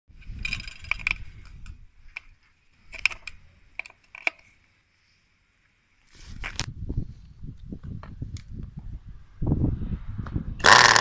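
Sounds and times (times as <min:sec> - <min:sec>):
sharp clicks and light clatter: 0:00.3 - 0:02.3.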